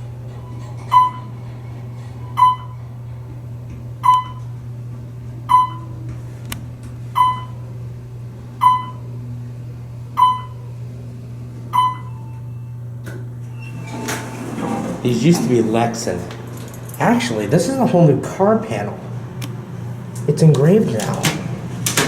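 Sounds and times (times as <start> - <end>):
steady low hum: 0.0 - 22.0
elevator chime dinging: 0.2 - 3.2, 4.0 - 4.6, 5.4 - 6.0, 7.1 - 7.7, 8.6 - 9.1, 10.1 - 10.7, 11.7 - 12.8.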